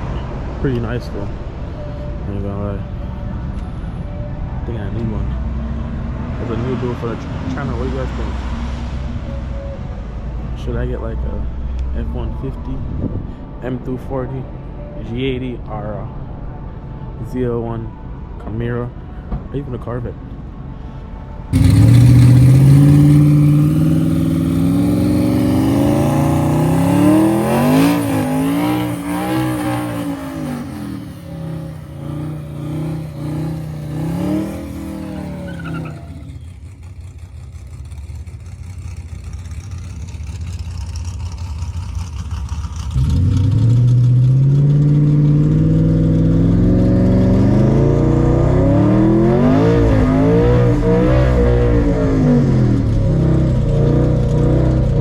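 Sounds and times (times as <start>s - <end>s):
truck engine accelerating hard: 21.6s - 55.0s.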